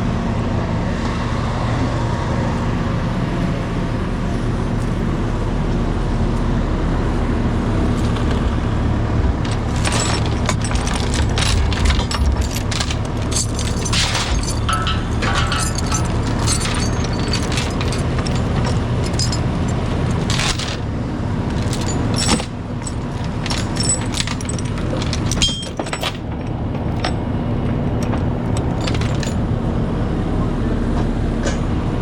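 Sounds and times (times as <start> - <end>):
metallic clanks and rattles: 9.2 - 29.5.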